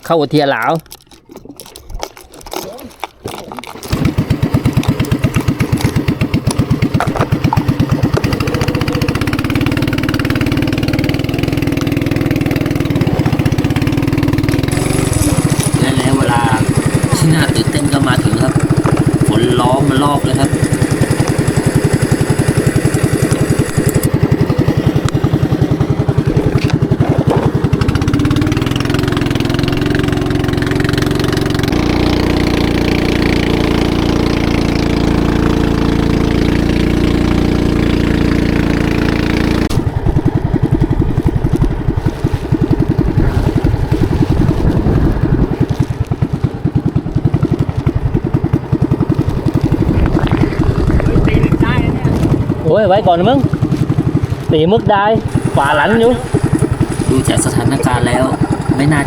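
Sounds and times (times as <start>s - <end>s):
boat engine chugging: 0.0s - 59.0s.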